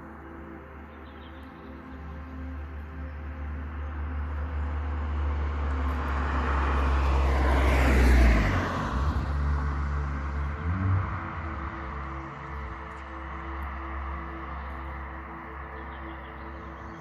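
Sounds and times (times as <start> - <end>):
vehicle driving past: 4.0 - 16.1.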